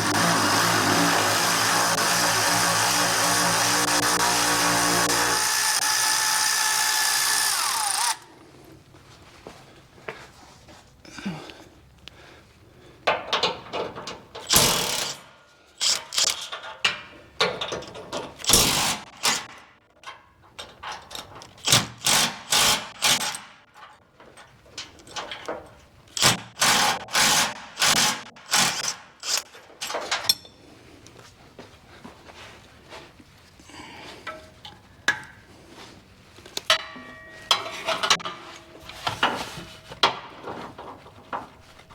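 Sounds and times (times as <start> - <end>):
power tool bursts: 0.0 - 8.2.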